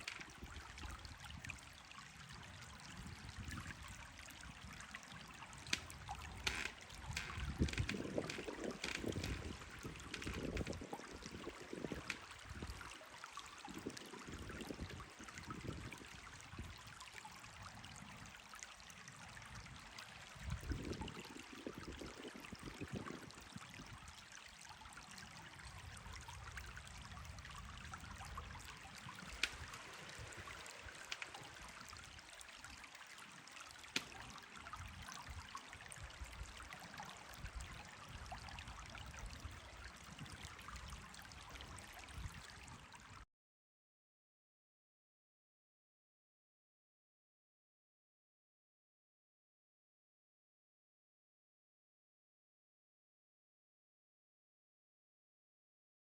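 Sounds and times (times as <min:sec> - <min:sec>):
river water over stones: 0:00.0 - 0:43.2
wind buffeting microphone: 0:02.4 - 0:12.8, 0:13.7 - 0:16.8, 0:20.4 - 0:24.0.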